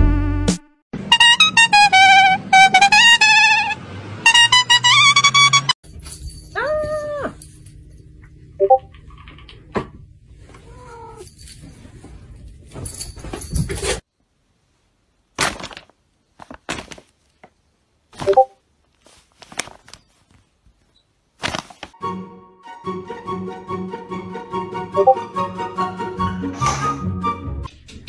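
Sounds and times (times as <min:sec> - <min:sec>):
cat meowing: 0:10.6 - 0:11.3.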